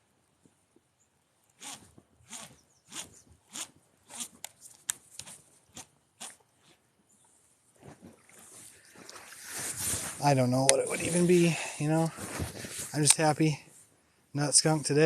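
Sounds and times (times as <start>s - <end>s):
crunching footsteps: 7.8s - 13.7s.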